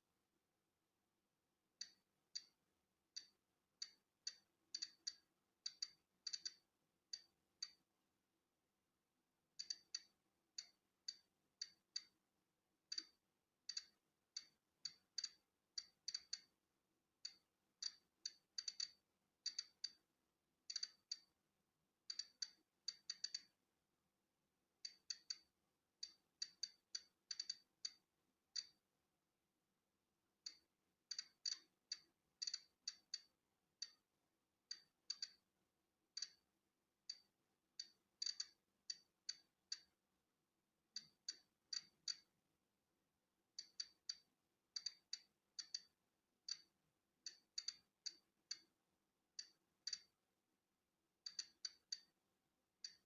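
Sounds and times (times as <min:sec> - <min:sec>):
geiger counter clicking: 0:01.8 - 0:02.6, 0:03.2 - 0:07.8, 0:09.6 - 0:12.2, 0:12.9 - 0:16.5, 0:17.2 - 0:20.0, 0:20.7 - 0:21.3, 0:22.1 - 0:23.5, 0:24.8 - 0:28.8, 0:30.5 - 0:34.0, 0:34.7 - 0:35.4, 0:36.2 - 0:36.4, 0:37.1 - 0:39.9, 0:41.0 - 0:42.3, 0:43.6 - 0:45.9, 0:46.5 - 0:46.7, 0:47.3 - 0:48.7, 0:49.4 - 0:50.1, 0:51.2 - 0:52.1.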